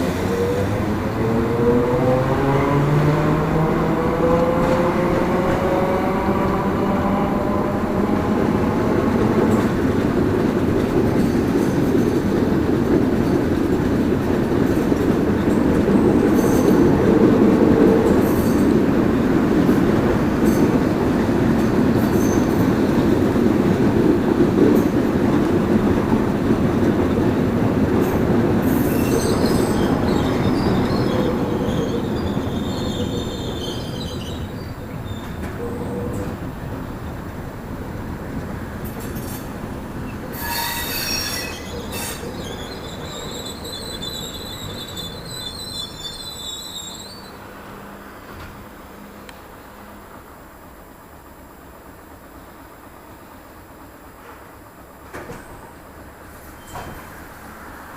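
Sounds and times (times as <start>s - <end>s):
train wheels rumbling on rail: 0.0s - 57.9s
high wheel squeals: 28.6s - 36.2s, 39.2s - 47.4s, 56.4s - 57.2s.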